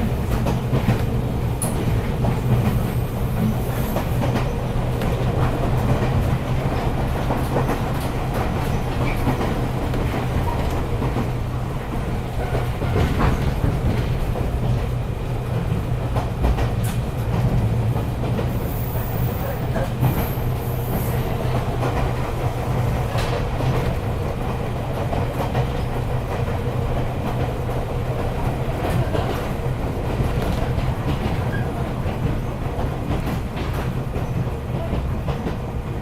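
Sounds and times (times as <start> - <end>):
train running gear rumble: 0.0 - 36.0
wheels clacking on rail joints: 0.0 - 36.0.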